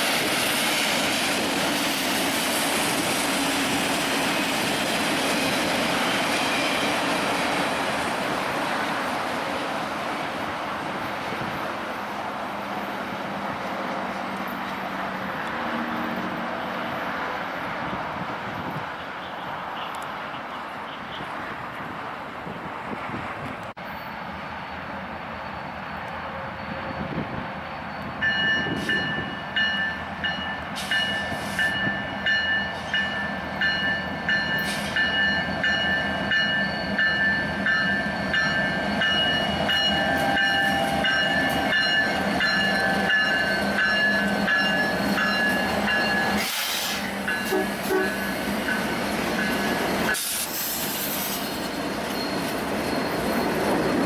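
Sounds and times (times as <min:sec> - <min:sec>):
train wheels clicking over rails: 0:30.6 - 0:54.0.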